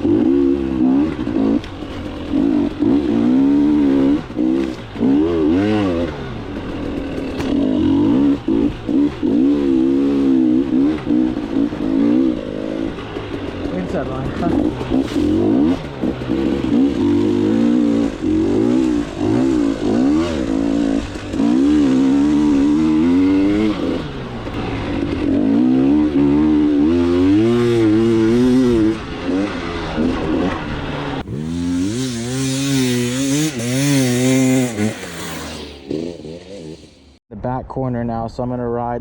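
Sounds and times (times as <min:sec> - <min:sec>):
dirt bike engine revving: 0:00.0 - 0:37.2
loud rushing hiss: 0:31.3 - 0:35.9.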